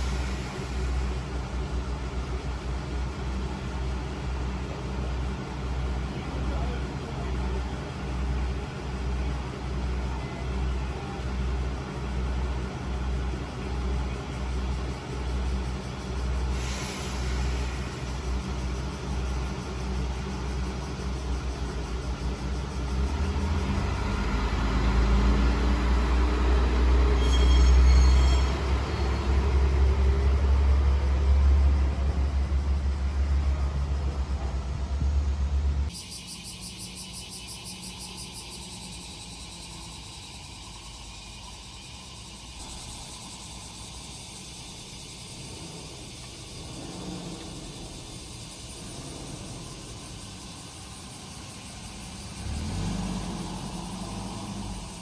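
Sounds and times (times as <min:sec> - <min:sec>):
diesel engine idling and revving: 0:00.0 - 0:36.0, 0:37.5 - 0:55.0
high ringing squeal: 0:25.8 - 0:34.2, 0:35.9 - 0:52.8.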